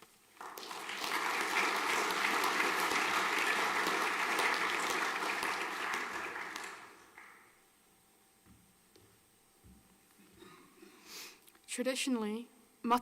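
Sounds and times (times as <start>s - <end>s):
audience applauding: 0.3s - 7.5s.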